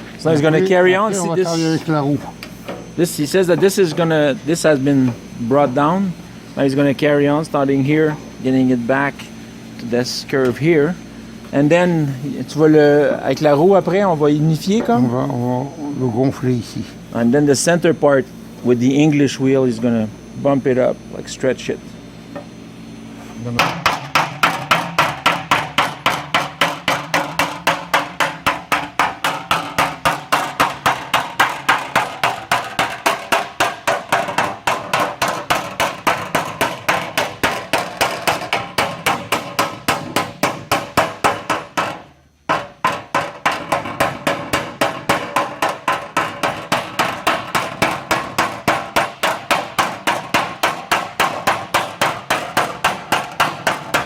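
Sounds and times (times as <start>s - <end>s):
hammer striking sheet metal: 23.6s - 54.0s.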